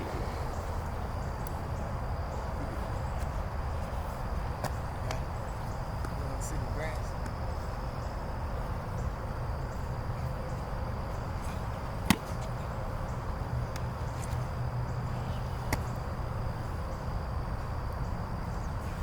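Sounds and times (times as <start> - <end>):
low outdoor rumble: 0.0 - 19.0
football slapping into hands: 12.0 - 12.5, 15.6 - 15.9.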